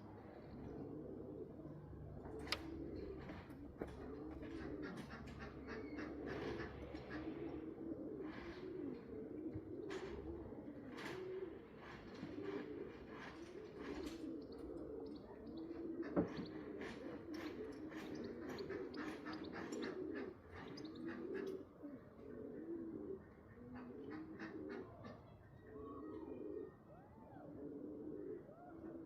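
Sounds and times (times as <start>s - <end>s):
pigeons cooing: 0.0s - 29.0s.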